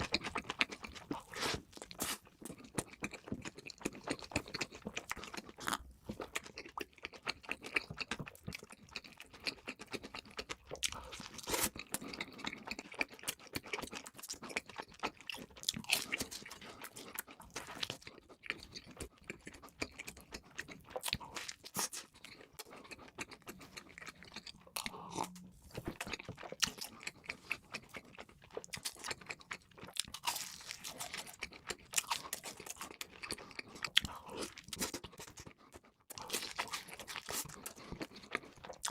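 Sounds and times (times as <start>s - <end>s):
person crunching fried food: 0.0s - 38.9s.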